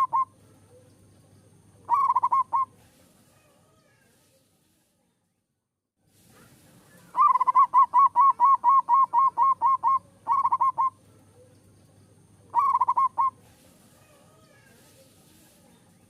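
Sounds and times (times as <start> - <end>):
dove cooing: 0.0 - 0.9, 1.8 - 2.9, 7.1 - 11.5, 12.5 - 14.6.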